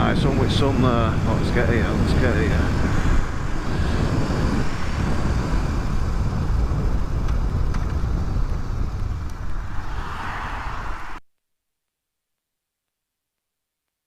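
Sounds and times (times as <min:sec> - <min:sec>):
road noise: 0:00.0 - 0:11.2
wind on microphone: 0:00.0 - 0:11.2.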